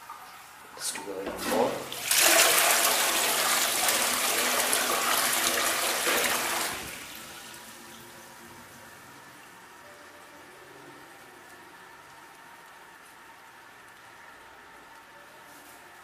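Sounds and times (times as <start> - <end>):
faint steady hiss: 0.0 - 2.1, 6.2 - 16.0
toilet flushing: 0.0 - 9.5.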